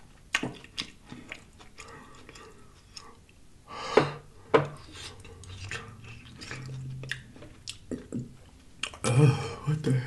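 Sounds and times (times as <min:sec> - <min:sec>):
chewing crunchy fried food: 0:00.0 - 0:03.4, 0:04.8 - 0:09.1.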